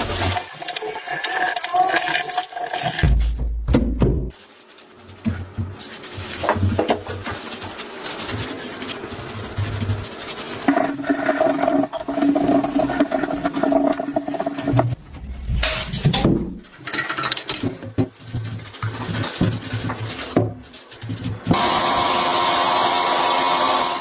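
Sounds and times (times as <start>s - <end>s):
scraping and rubbing: 4.3s - 21.8s.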